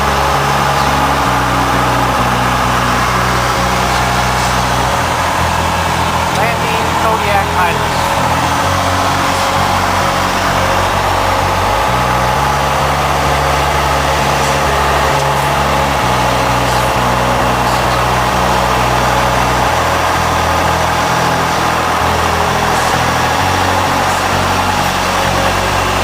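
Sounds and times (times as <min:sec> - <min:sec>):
airplane engine droning in flight: 0:00.0 - 0:26.0.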